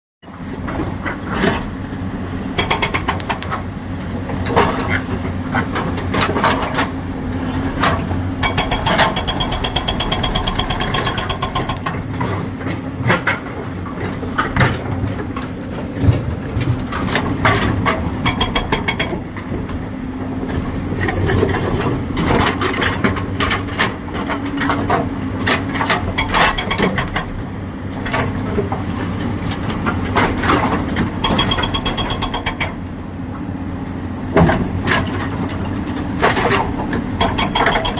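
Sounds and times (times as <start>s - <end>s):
excavator diesel engines running: 0.3s - 37.9s
metallic clanks and rattles: 2.6s - 5.0s, 5.6s - 19.8s, 21.0s - 28.8s, 29.5s - 32.9s, 34.3s - 37.9s.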